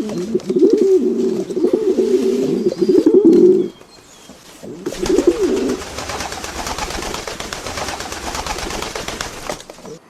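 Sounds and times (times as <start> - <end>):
bird cooing: 0.0 - 10.0
rustling scratching with clicks: 3.3 - 10.0.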